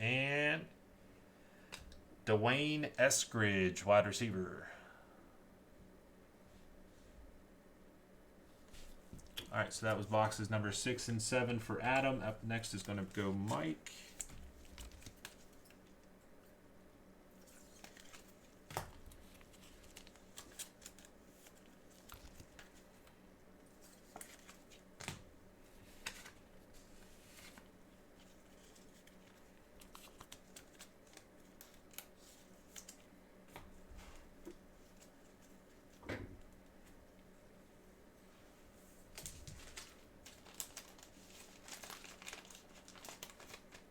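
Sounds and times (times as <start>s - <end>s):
wrappers crinkling and tearing: 17.4s - 22.9s, 27.1s - 33.1s, 39.1s - 43.9s.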